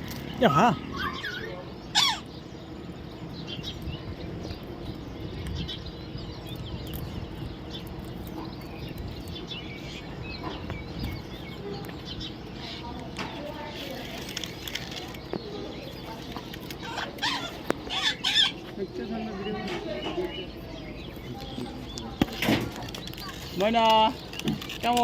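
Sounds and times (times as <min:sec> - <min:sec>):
low background hum: 0:00.0 - 0:25.0
parrot squawk: 0:00.9 - 0:02.3, 0:16.8 - 0:18.6.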